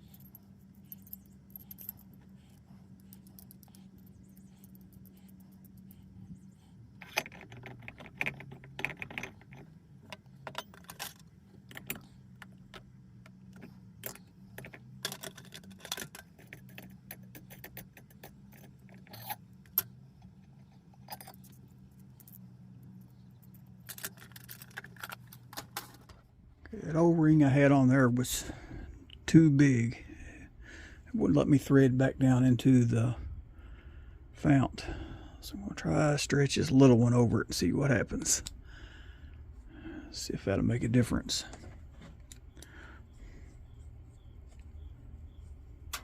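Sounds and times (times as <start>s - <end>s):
metal parts clicking and clinking: 0.0s - 6.0s, 7.0s - 26.2s
steady low hum: 0.0s - 46.0s.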